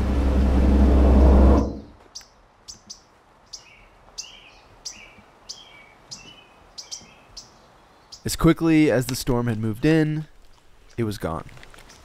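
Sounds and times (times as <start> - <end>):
songbird chirping: 1.6 - 12.0.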